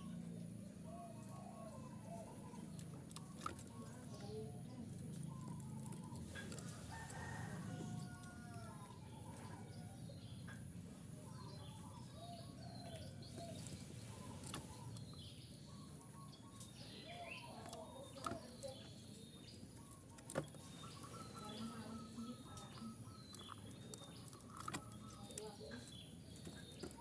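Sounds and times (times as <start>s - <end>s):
small birds chirping: 0.0s - 27.0s
dove cooing: 0.8s - 8.2s.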